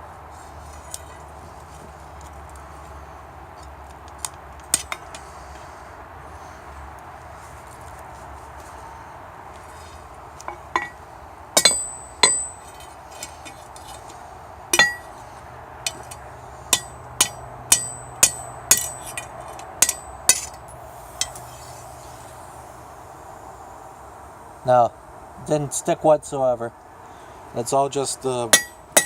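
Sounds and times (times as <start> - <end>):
steady hiss: 4.6 - 29.0
hammer striking metal on anvil: 11.6 - 12.7, 14.7 - 15.1, 15.9 - 20.6, 28.5 - 29.0.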